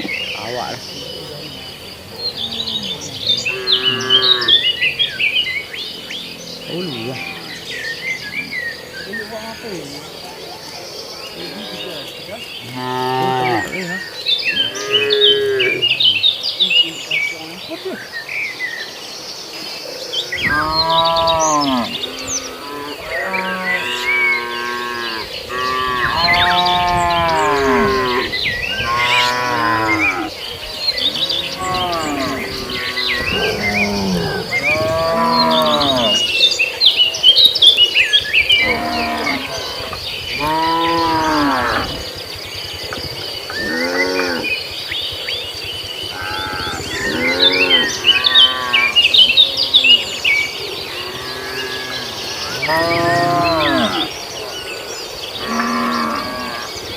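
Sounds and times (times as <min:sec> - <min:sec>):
birds chirping: 0:00.0 - 0:56.9
insects buzzing: 0:00.0 - 0:56.9
cattle mooing: 0:02.4 - 0:04.8, 0:06.6 - 0:08.5, 0:12.6 - 0:14.0, 0:14.6 - 0:16.1, 0:20.4 - 0:30.3, 0:31.0 - 0:36.3, 0:38.6 - 0:42.0, 0:46.2 - 0:50.2, 0:50.9 - 0:54.1.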